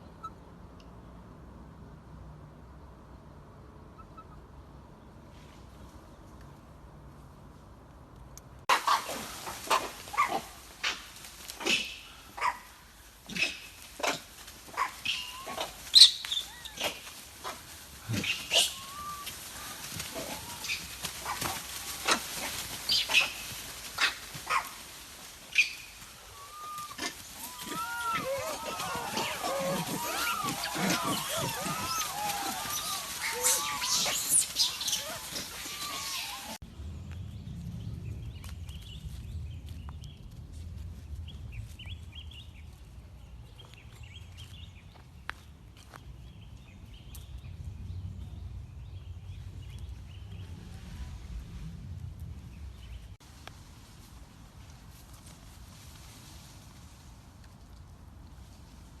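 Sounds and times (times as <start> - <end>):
monkey squeaking and chirping: 15.0 - 16.9, 27.5 - 36.6
low rumble: 36.6 - 43.0.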